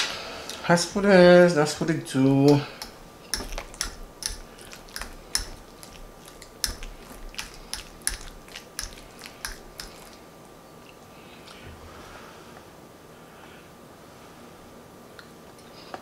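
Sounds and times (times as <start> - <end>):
wet mouth chewing clicks: 2.8 - 10.2.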